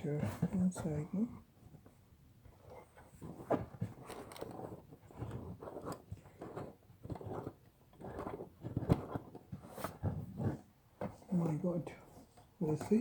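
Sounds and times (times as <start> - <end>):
umbrella frame clicks and rattles: 2.7 - 10.6.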